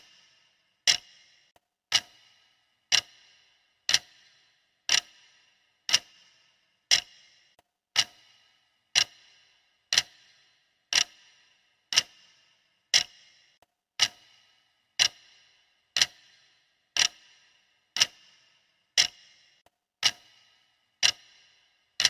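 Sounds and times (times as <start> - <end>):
clock ticking with metallic ring: 0.0 - 22.0.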